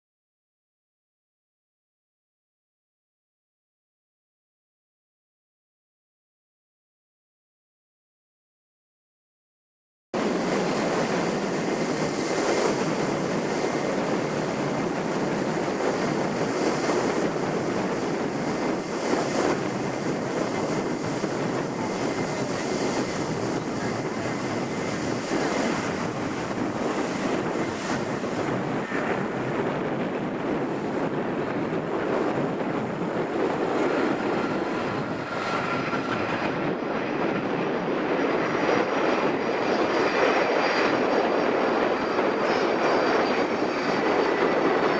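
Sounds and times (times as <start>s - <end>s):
jet engines rushing: 10.2s - 44.9s.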